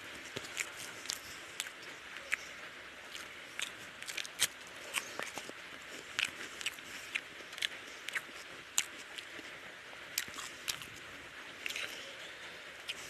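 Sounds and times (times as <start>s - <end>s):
person chewing: 0.0s - 9.5s, 10.2s - 11.0s, 11.6s - 12.1s
wet clicks and crunches: 3.1s - 9.3s.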